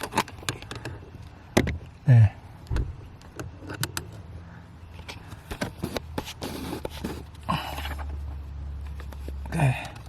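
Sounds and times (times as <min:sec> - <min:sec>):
handling clicks and knocks: 0:00.0 - 0:02.0.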